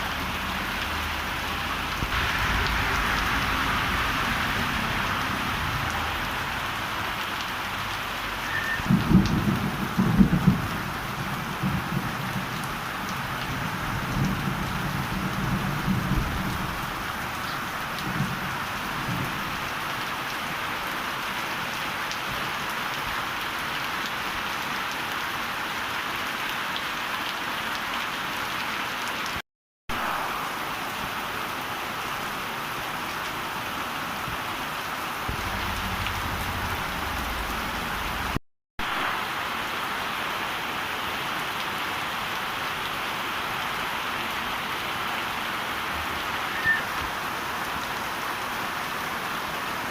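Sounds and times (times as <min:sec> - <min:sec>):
heavy rain pouring: 0:00.0 - 0:49.9
thunder rumbling: 0:01.9 - 0:06.6, 0:08.8 - 0:12.6, 0:35.2 - 0:38.4.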